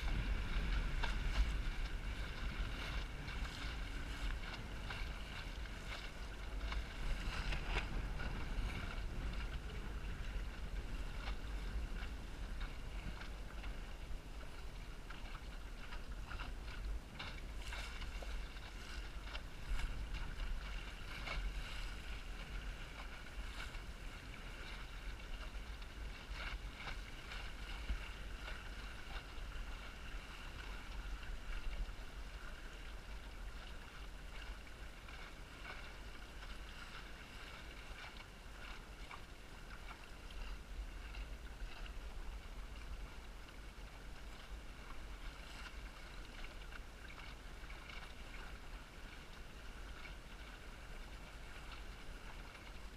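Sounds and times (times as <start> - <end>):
wind buffeting microphone: 0.0 - 32.9
water slapping against hull: 0.0 - 52.9.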